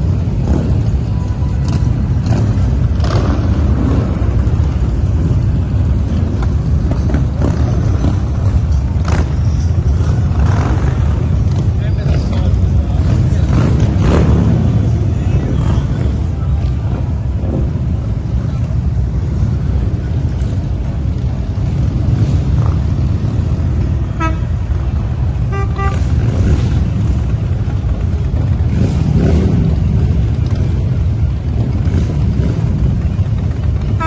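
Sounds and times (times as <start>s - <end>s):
vehicle engine and road rumble: 0.0s - 34.0s
short horn toots: 24.1s - 24.6s, 25.4s - 26.6s.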